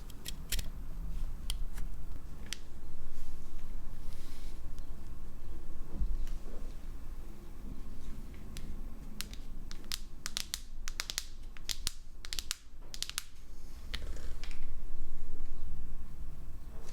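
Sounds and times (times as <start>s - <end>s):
small tools clicking and snapping: 0.0s - 0.7s.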